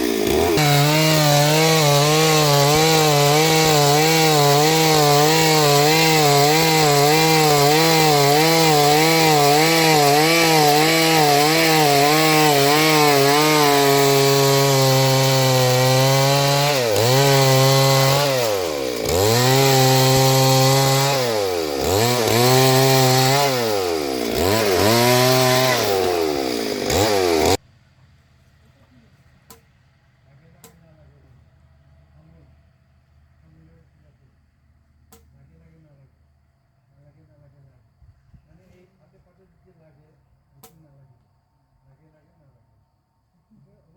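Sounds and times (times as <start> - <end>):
chainsaw cutting wood: 0.0 - 27.6.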